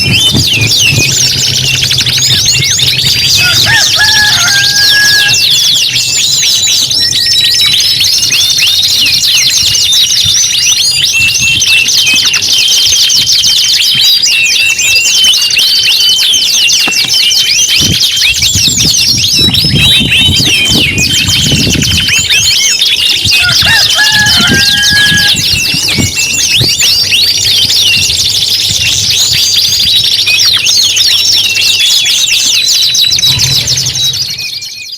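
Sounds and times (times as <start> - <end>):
canaries singing: 0.0 - 34.9.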